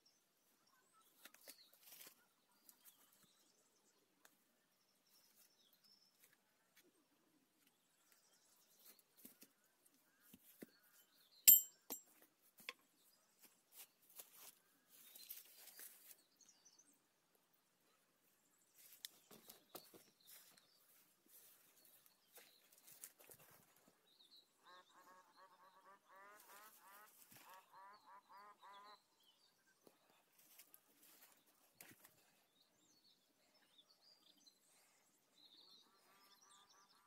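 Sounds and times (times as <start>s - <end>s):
small birds chirping: 12.7s - 17.2s, 17.8s - 37.0s.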